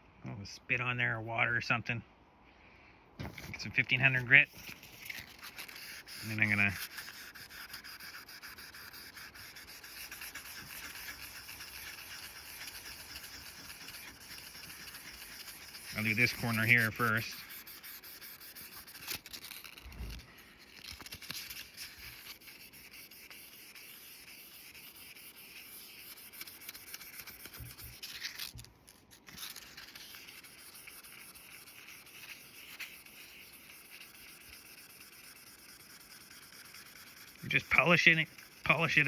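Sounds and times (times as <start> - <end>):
sandpaper rubbing on steel: 3.3 - 39.0.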